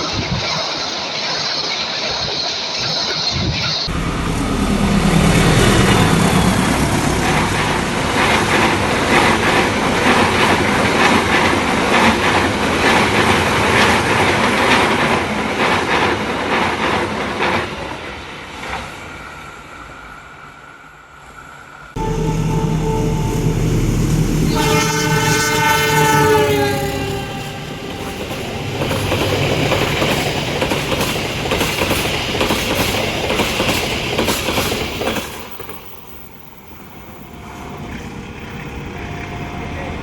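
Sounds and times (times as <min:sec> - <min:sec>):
train wheels clattering over rails: 0:05.2 - 0:18.0, 0:25.9 - 0:36.3.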